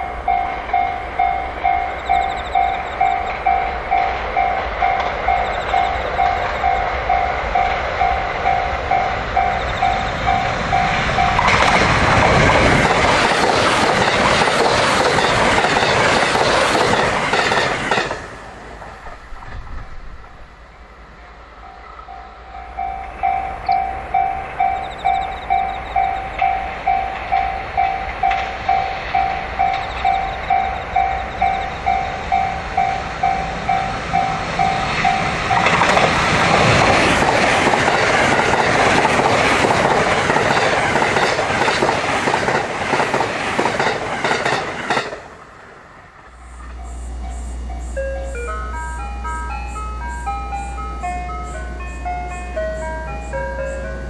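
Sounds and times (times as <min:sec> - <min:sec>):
level crossing alarm ringing: 0:00.0 - 0:11.6, 0:22.2 - 0:35.9, 0:46.8 - 0:54.0
train approaching: 0:00.0 - 0:54.0
train passing at speed: 0:00.0 - 0:54.0.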